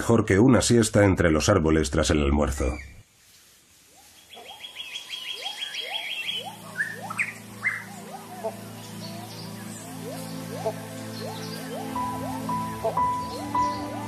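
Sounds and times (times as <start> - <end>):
birds chirping: 2.0 - 3.1, 3.9 - 14.0
fast high bird trill: 4.3 - 14.0
background music: 6.3 - 14.0.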